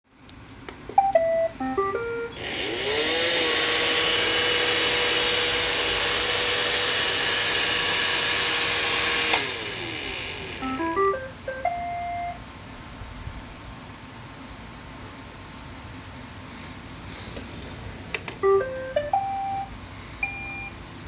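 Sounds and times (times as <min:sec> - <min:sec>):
electronic beep tune: 0:01.0 - 0:02.4, 0:10.6 - 0:12.4, 0:18.4 - 0:20.7
robot vacuum motors whirring: 0:02.4 - 0:10.6.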